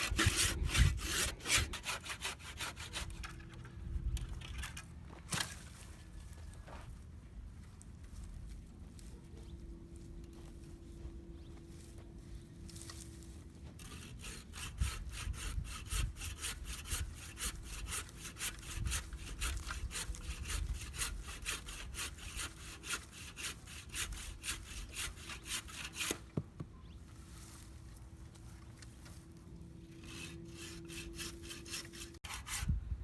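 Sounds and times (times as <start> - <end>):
hand saw cutting wood: 0.0 - 3.5, 13.8 - 26.4, 30.0 - 32.8.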